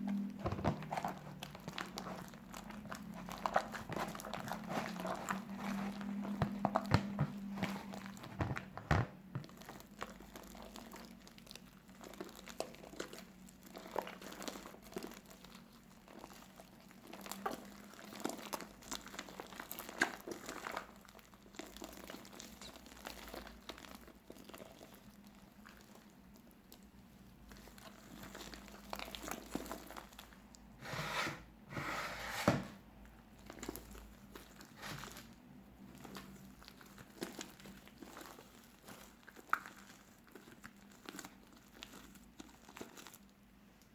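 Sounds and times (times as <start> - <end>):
slime squishing and crackling: 0.0 - 30.7, 33.0 - 43.9.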